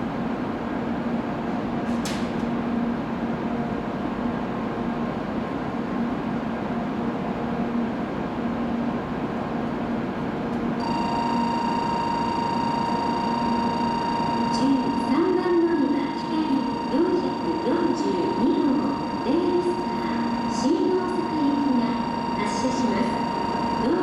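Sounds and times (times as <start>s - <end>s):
train humming: 0.0s - 24.0s
steady electronic tone: 10.8s - 24.0s.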